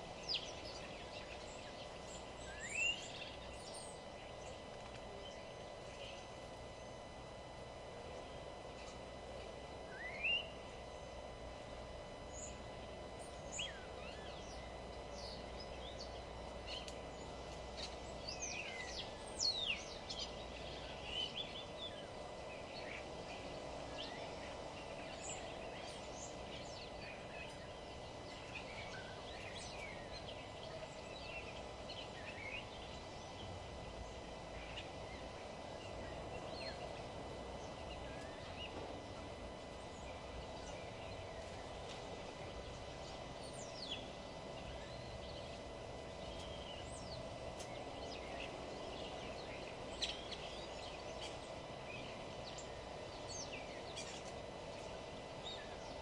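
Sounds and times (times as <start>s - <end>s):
low background hum: 0.0s - 56.0s
birds chirping and calling: 43.0s - 56.0s.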